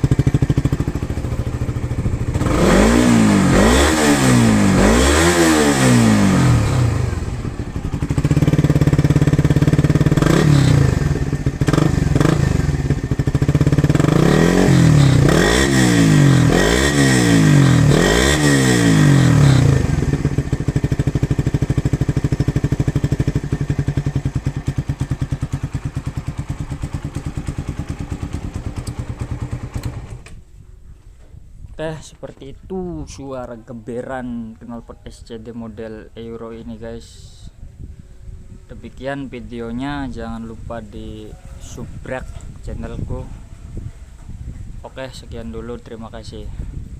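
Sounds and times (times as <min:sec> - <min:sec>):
motorcycle engine revving and idling: 0:00.0 - 0:30.5.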